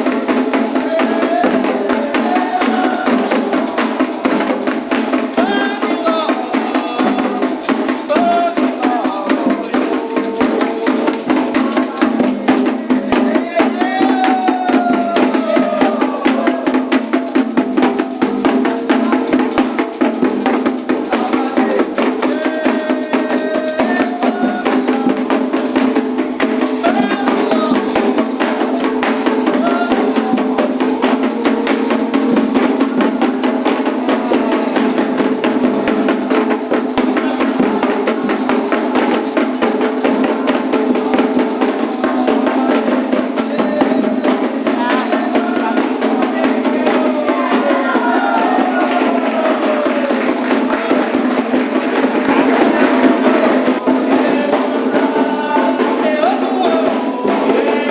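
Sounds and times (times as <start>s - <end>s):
hand drums playing fast rhythm: 0.0s - 57.9s
voices singing: 0.0s - 57.9s.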